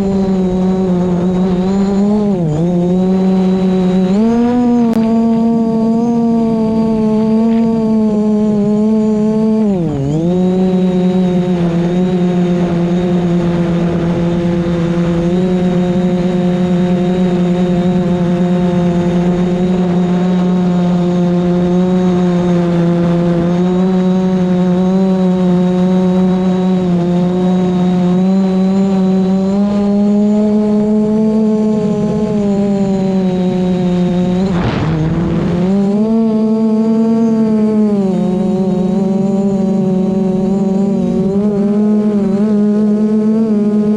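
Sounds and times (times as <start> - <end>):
drone propellers whirring: 0.0 - 43.9
strong wind rumble: 30.6 - 38.9.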